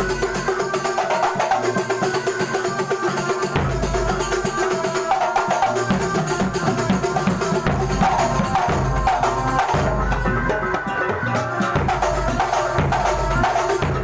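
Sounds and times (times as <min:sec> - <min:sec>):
fast dense drumming: 0:00.0 - 0:14.0
pitched percussion instruments: 0:00.0 - 0:14.0
deep drum: 0:05.9 - 0:10.9, 0:11.6 - 0:14.0.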